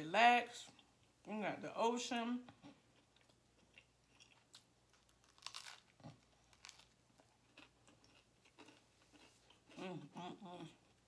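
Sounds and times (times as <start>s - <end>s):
biting and chewing bread roll: 2.6s - 11.0s
crunchy crackles: 4.1s - 9.3s.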